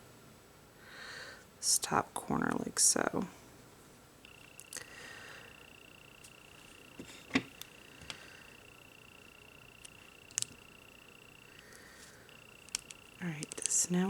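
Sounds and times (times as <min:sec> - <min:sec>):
faint high-pitched whine: 0:00.0 - 0:14.0
small tools clicking on a table: 0:09.8 - 0:10.6, 0:11.5 - 0:13.8.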